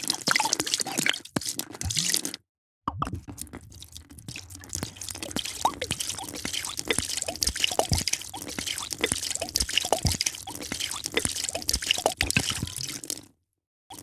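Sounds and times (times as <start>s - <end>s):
drink being poured: 3.2s - 13.3s.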